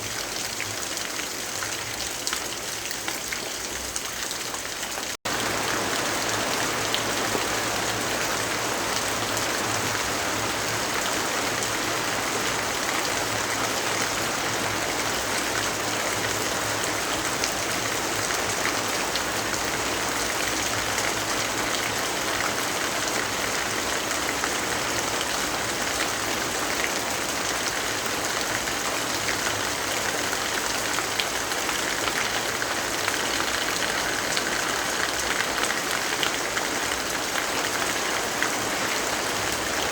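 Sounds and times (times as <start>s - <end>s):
heavy rainfall: 0.0s - 39.9s.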